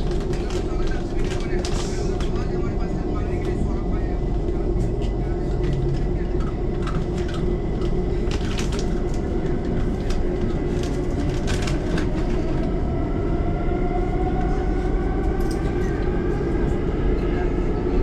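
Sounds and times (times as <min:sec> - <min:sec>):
train rumble: 0:00.0 - 0:18.0.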